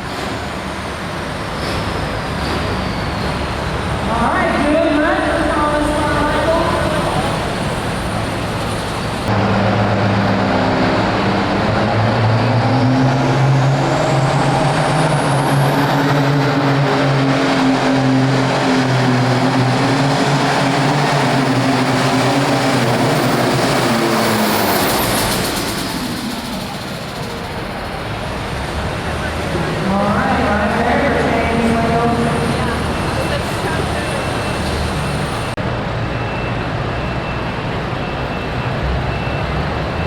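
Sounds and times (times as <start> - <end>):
tractor diesel engine at full throttle: 5.7 - 35.7.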